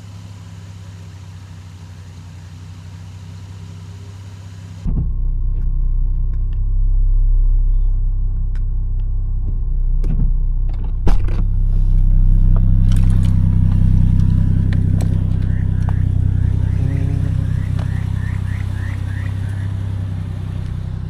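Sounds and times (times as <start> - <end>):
engine exhaust droning: 0.0 - 21.0.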